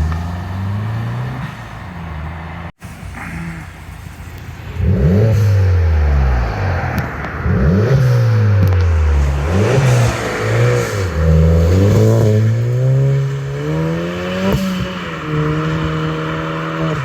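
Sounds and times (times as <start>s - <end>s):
steady low engine note: 0.0s - 13.6s
car engine revving: 0.0s - 17.0s.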